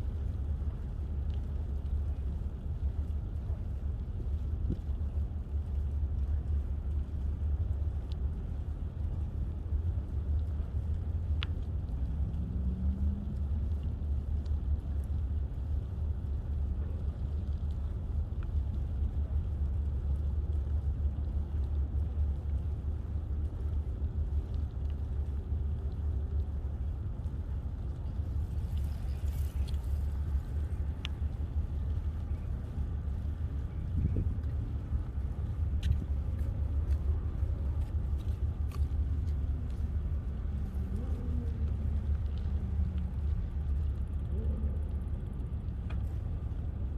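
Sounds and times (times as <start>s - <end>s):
faint ticks: 0.0s - 46.9s
wind and tyre rumble: 0.0s - 46.9s.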